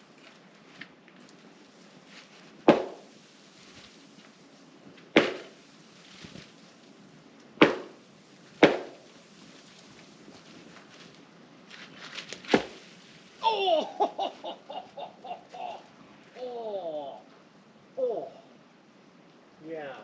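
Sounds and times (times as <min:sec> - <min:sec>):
knocks on tree trunk: 0:02.6 - 0:03.1, 0:05.2 - 0:05.5, 0:07.6 - 0:08.0, 0:08.6 - 0:09.0, 0:12.4 - 0:12.8.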